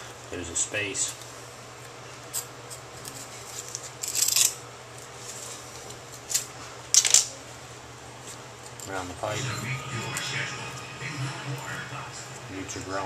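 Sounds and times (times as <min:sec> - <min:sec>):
scraping rustling sounds: 0:05.0 - 0:06.8
steady low hum: 0:07.4 - 0:13.0.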